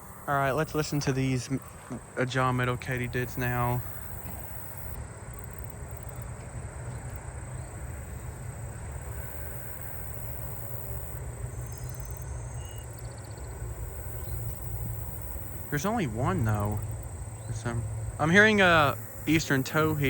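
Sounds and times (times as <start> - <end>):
katydid high buzzing: 9.2 - 20.0.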